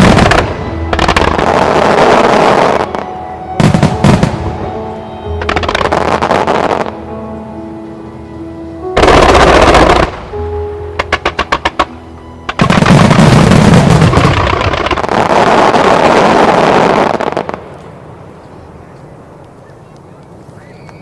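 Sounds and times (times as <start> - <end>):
fireworks bursting and crackling: 0.0 - 7.0, 9.0 - 10.4, 11.0 - 18.1
music playing: 0.0 - 17.5.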